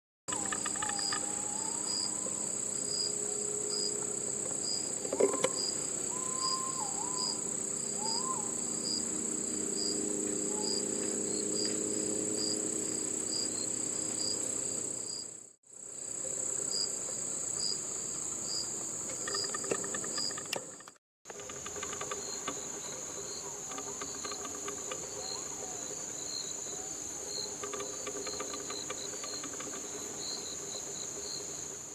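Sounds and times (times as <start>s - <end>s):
pigeon cooing: 0.3s - 2.5s, 5.1s - 7.4s
insect pulsing chirp: 0.3s - 15.2s, 15.8s - 31.9s
insect high trill: 0.3s - 31.9s.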